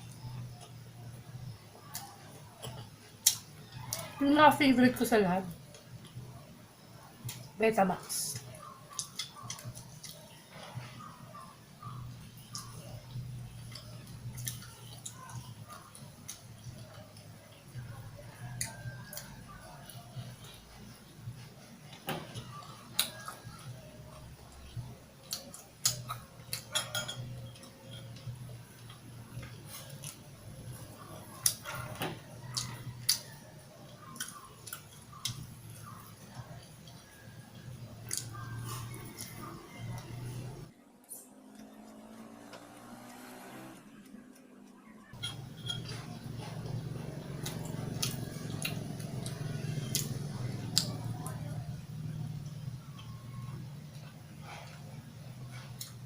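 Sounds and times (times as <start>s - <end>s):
low steady background hum: 0.0s - 43.1s, 43.8s - 56.0s
chewing mouth clicks and smacks: 8.4s - 10.7s, 11.4s - 20.6s, 22.3s - 40.2s, 44.8s - 51.6s
person eating: 21.8s - 43.1s, 44.0s - 51.7s.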